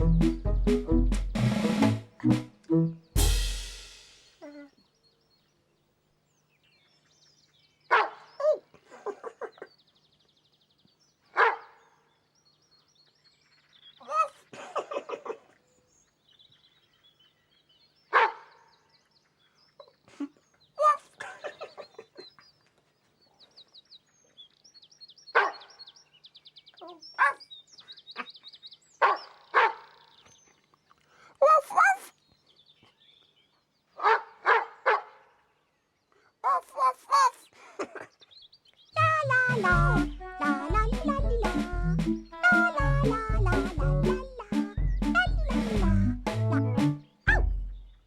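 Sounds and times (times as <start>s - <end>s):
dog barking: 7.9s - 8.3s, 11.3s - 11.8s, 18.1s - 18.6s, 25.4s - 25.7s, 27.2s - 27.4s, 29.0s - 30.0s, 34.0s - 35.2s
birds twittering: 15.4s - 31.1s, 37.3s - 45.8s.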